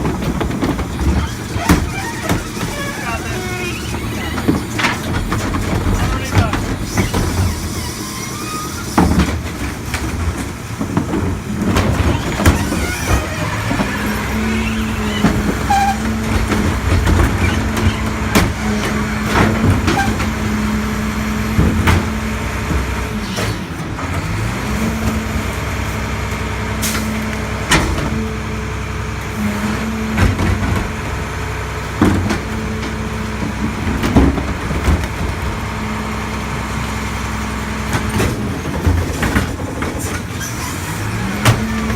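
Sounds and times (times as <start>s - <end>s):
metal clanks and knocks: 0.0s - 8.0s, 32.0s - 35.8s, 37.8s - 41.9s
garbage truck engine droning: 0.0s - 41.9s.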